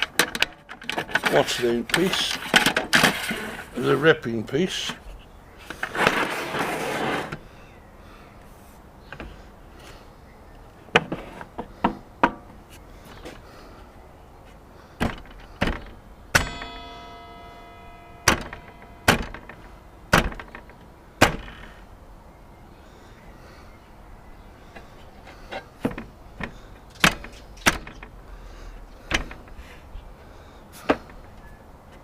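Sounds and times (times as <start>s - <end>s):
metal scraping slide: 2.2s - 3.9s, 5.7s - 7.4s
sharp knocks and clunks: 10.9s - 12.6s, 15.0s - 21.8s, 25.5s - 28.2s, 29.1s - 29.6s.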